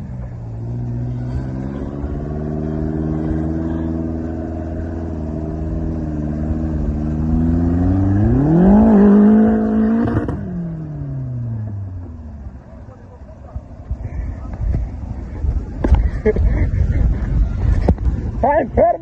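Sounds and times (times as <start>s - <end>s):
engine running and revving: 0.0s - 14.0s.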